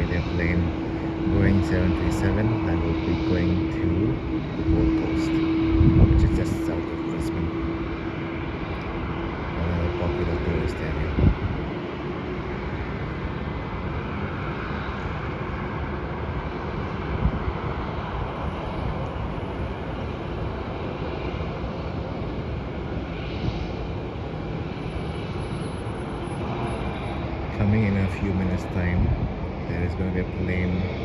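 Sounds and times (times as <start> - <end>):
distant jet engines: 0.0 - 31.0.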